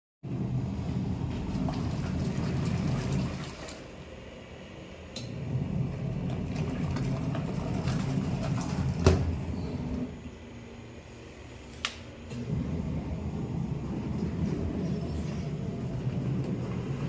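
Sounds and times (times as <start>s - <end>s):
washing machine rumbling: 0.2s - 17.0s
washing machine knock: 6.2s - 9.5s.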